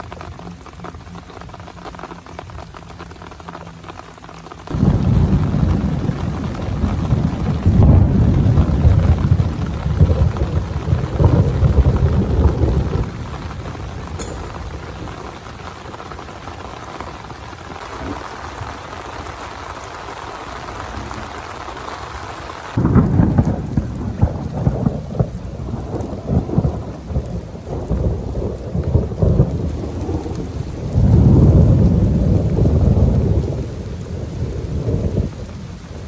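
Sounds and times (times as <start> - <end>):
heavy rain: 0.0 - 36.0
rumble of thunder: 4.7 - 19.4, 22.8 - 36.0.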